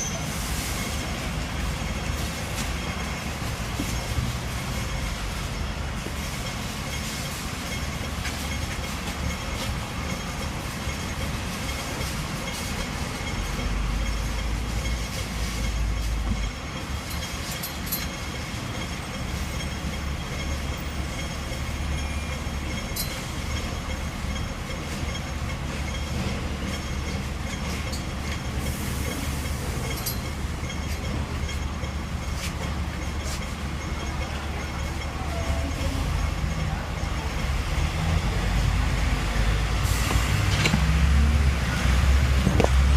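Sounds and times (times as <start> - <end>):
tram wheels and motors rumbling: 0.0 - 42.9.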